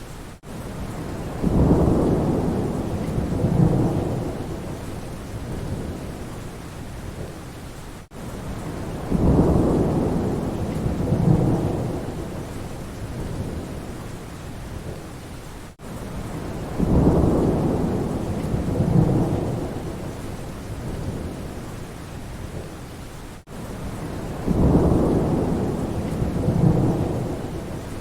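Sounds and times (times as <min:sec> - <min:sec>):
steady rain: 0:00.0 - 0:28.0
rolling thunder: 0:00.9 - 0:06.2, 0:08.6 - 0:13.9, 0:16.2 - 0:21.6, 0:23.8 - 0:28.0.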